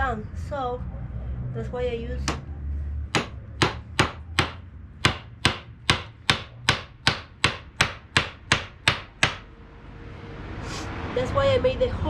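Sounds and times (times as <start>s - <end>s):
hammer striking nail into wood: 3.1s - 9.5s.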